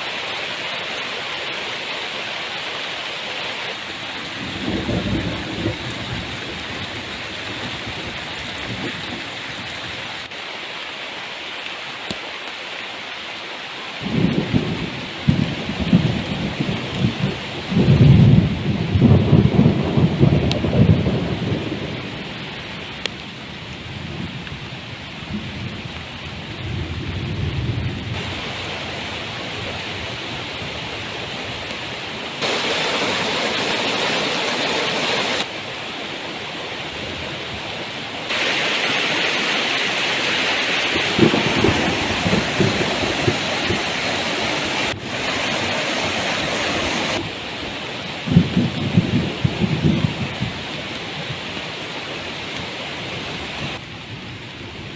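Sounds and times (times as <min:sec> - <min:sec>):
heavy rain falling: 0:00.0 - 0:54.9
thunder rumbles: 0:04.2 - 0:09.3, 0:14.0 - 0:22.4, 0:23.6 - 0:29.3, 0:40.7 - 0:47.4, 0:48.2 - 0:50.7.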